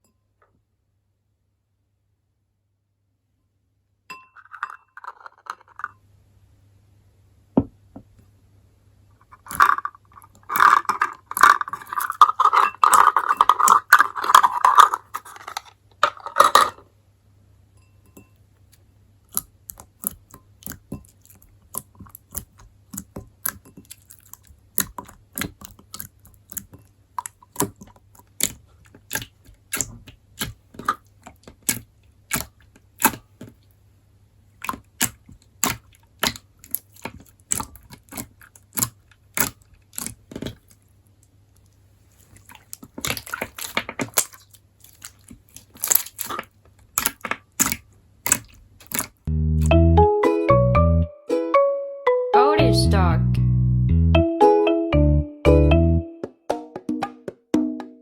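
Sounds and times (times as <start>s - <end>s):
wet clicks and pops: 19.3s - 33.5s, 34.6s - 40.8s, 42.6s - 49.7s
slime squelching by hand: 19.3s - 33.6s, 34.5s - 49.7s.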